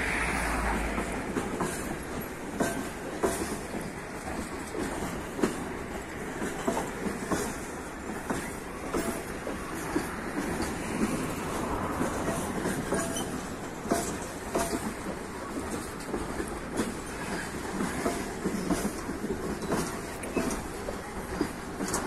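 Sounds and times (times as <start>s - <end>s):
freight train rolling past: 0.0s - 22.0s
wheels clacking over rail joints: 0.0s - 22.0s
wheel squeals: 12.9s - 13.5s.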